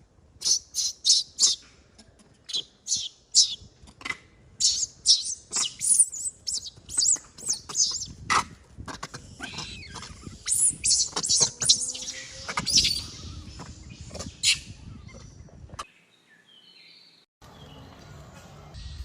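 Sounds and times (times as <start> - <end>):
high-pitched chirping calls: 0.4 - 1.6, 2.5 - 3.7, 4.6 - 8.2, 9.2 - 15.4.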